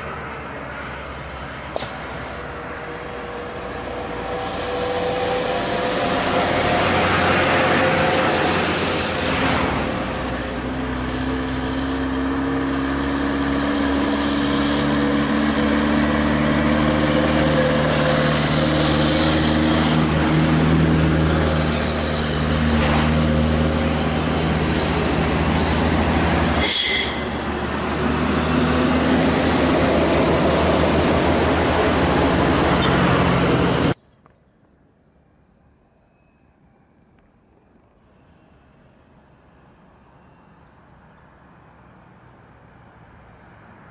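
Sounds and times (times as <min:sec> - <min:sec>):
truck diesel engine straining: 0:03.2 - 0:34.0.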